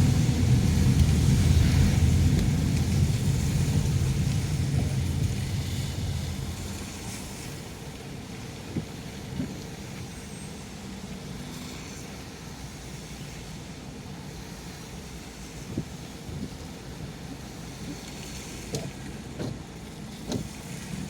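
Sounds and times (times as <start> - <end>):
car road noise inside cabin: 0.0 - 10.1.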